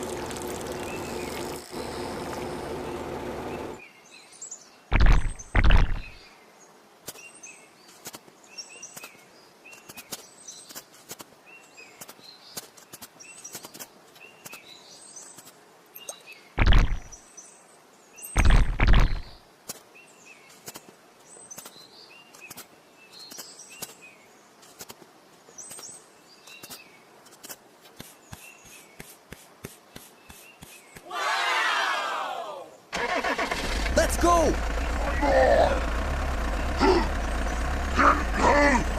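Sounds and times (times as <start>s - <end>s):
small birds chirping: 0.0s - 31.1s, 34.4s - 38.9s
deep thumps: 4.9s - 6.2s.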